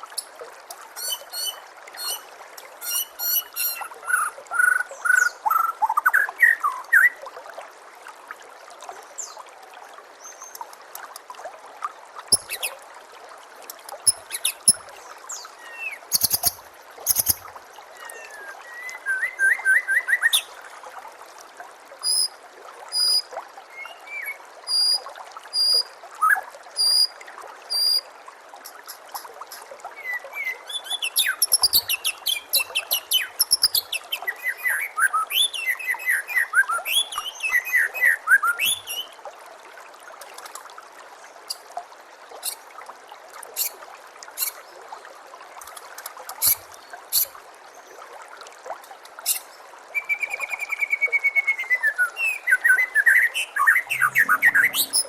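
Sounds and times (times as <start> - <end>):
running water trickling: 0.0 - 50.9, 51.5 - 55.0
songbird chirps and whistles: 1.0 - 2.2, 2.8 - 7.1, 12.3 - 12.8, 14.1 - 14.8, 15.6 - 17.4, 18.0 - 20.5, 30.0 - 39.1, 50.0 - 55.0.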